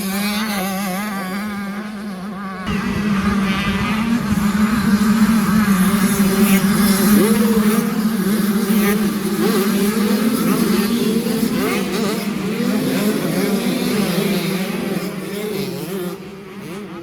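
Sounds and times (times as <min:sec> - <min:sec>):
motocross bike engines revving: 0:00.0 - 0:17.0
steady engine drone: 0:02.5 - 0:11.3.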